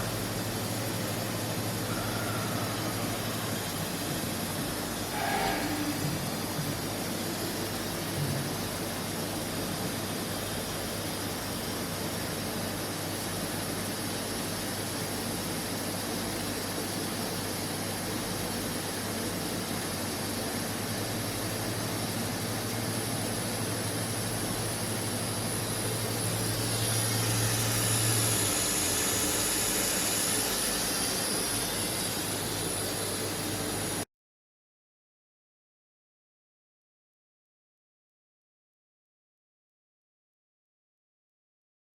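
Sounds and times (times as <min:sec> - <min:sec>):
thin high whine: 0:00.0 - 0:06.8, 0:22.2 - 0:34.1
machining centre mechanical whir: 0:00.0 - 0:34.1.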